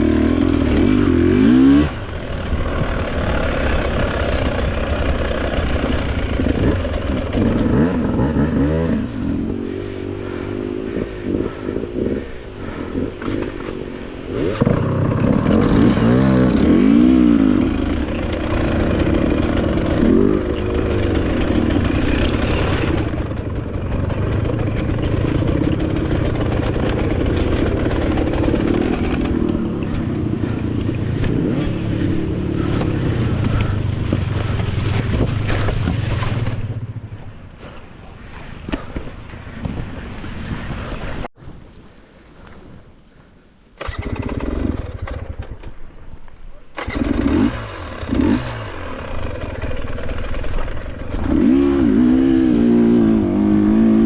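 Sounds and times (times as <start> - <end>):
dirt bike engine revving: 0.0 - 41.3, 46.8 - 54.0.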